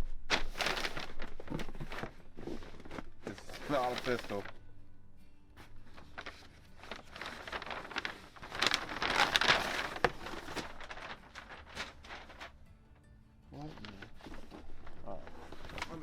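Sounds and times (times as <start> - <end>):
cardboard box rustling and crinkling: 0.3 - 4.5, 6.0 - 12.5, 13.9 - 16.0.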